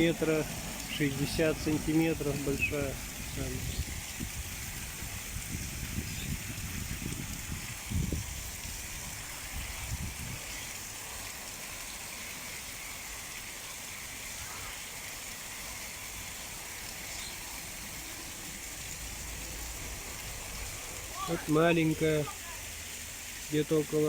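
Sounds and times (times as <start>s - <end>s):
low rumbles: 0.0s - 10.4s, 18.0s - 22.0s
sea waves breaking on shore: 13.9s - 23.5s.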